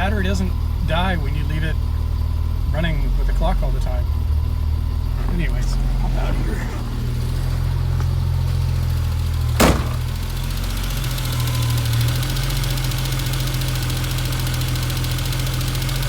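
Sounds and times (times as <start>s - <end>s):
car engine idling: 0.0s - 16.0s
car door shutting: 6.2s - 10.4s.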